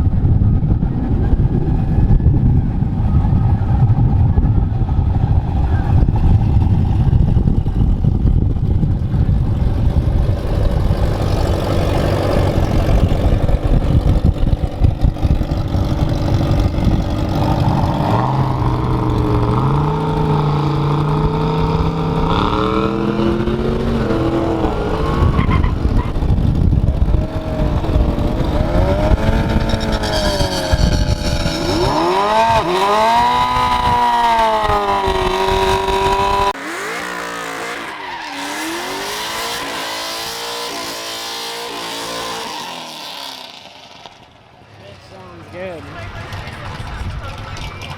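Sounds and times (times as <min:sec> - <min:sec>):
loud car engine revving: 0:09.0 - 0:44.2.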